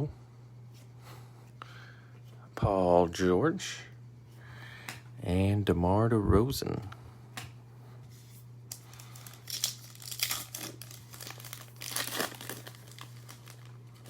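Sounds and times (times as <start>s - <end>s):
foil wrapper tearing and crinkling: 8.7s - 14.0s.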